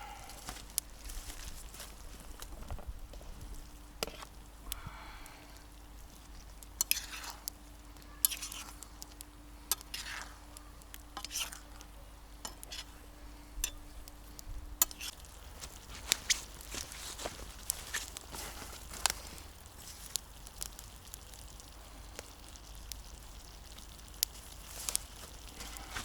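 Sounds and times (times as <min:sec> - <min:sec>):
utensil scraping food in frying pan: 0:06.0 - 0:13.9, 0:14.8 - 0:20.2.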